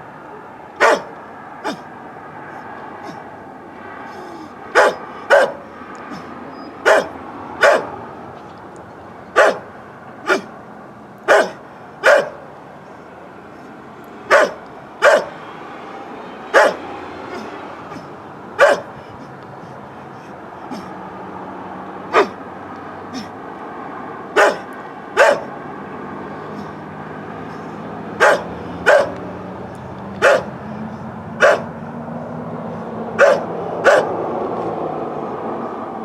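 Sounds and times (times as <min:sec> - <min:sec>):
dog barking: 0:00.3 - 0:01.9, 0:04.2 - 0:08.0, 0:09.3 - 0:10.5, 0:11.2 - 0:12.5, 0:14.3 - 0:15.4, 0:16.5 - 0:19.1, 0:22.1 - 0:22.4, 0:24.3 - 0:25.6, 0:27.5 - 0:29.2, 0:30.2 - 0:30.6, 0:31.4 - 0:31.8, 0:33.1 - 0:34.2.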